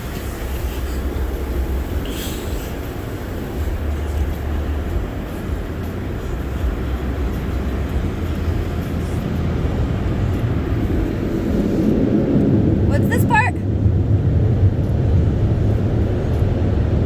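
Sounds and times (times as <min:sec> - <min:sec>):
car wash rumbling and hissing: 0:00.0 - 0:17.0.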